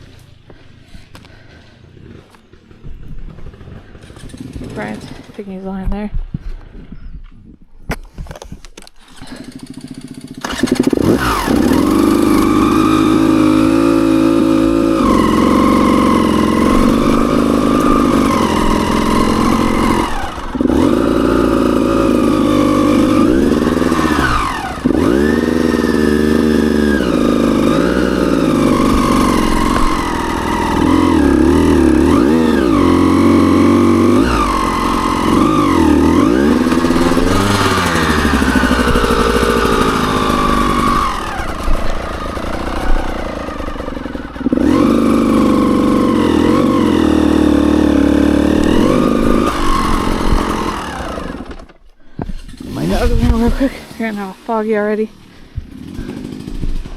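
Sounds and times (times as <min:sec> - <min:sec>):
dirt bike engine revving: 0:01.4 - 0:05.6, 0:09.0 - 0:56.9.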